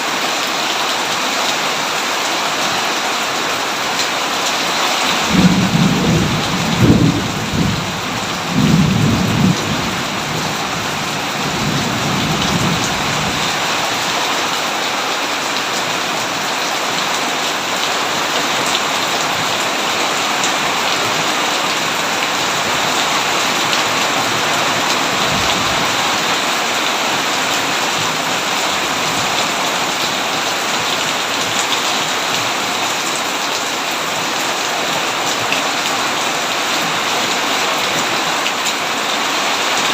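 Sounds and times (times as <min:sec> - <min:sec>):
heavy rain: 0:00.0 - 0:39.9
rolling thunder: 0:05.3 - 0:13.5.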